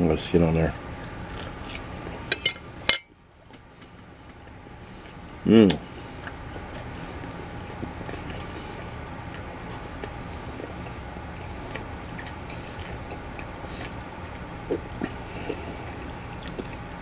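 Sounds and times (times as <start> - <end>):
steady low hum: 0.0 - 17.0
person chewing: 1.2 - 2.2, 6.1 - 16.9.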